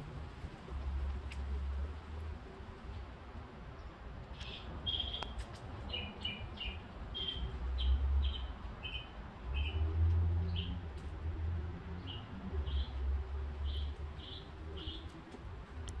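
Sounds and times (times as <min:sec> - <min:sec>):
birds chirping: 0:04.4 - 0:09.8, 0:12.0 - 0:15.2.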